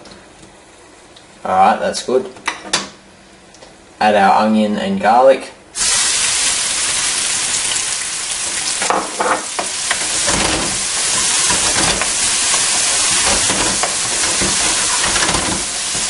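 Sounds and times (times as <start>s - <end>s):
onion sizzling in hot oil: 5.8s - 16.0s
wooden spoon scraping a pot: 9.6s - 16.0s.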